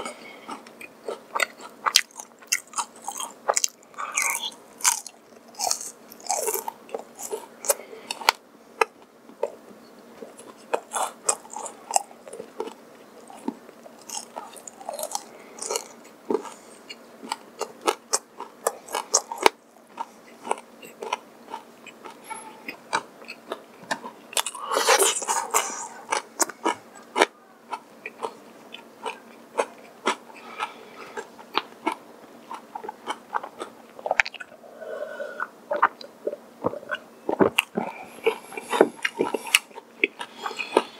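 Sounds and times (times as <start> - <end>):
chewing crispy food: 0.0 - 40.9
person swallowing a drink: 35.4 - 38.0.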